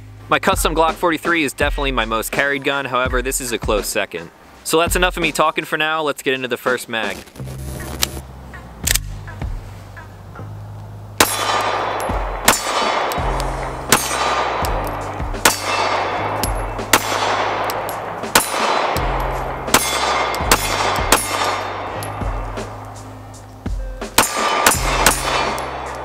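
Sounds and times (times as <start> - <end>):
background music with bass line: 0.0 - 4.1, 4.8 - 5.5, 7.0 - 26.0
bullet clanging on steel target: 11.2 - 23.0, 24.1 - 26.0
pistol shots: 11.2 - 23.0, 24.0 - 26.0.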